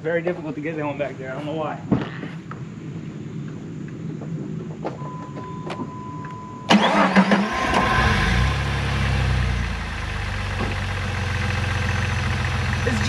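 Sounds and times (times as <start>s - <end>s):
engine cranking on starter: 6.7s - 13.0s
engine idling: 6.7s - 13.0s.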